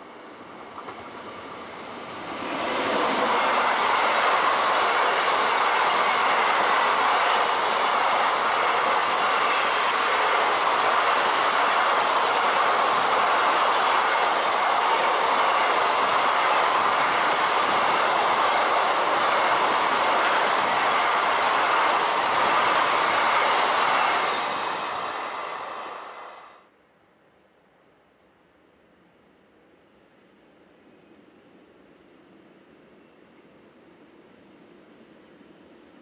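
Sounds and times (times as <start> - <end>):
train wheels rushing on rails: 0.0 - 26.6.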